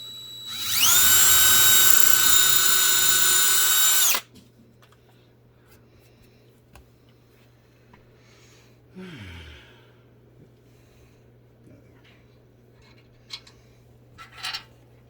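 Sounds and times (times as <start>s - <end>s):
power drill drilling: 0.0s - 4.2s.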